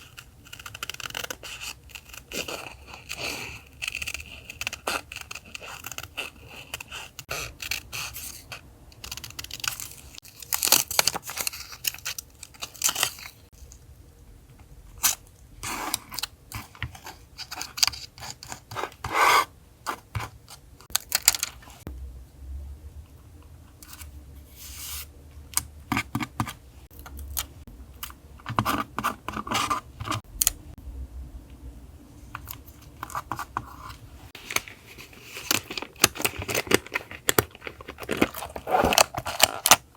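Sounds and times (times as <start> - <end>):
low background hum: 0.0 - 39.9
stickers and paper peeled and torn: 9.0 - 13.4.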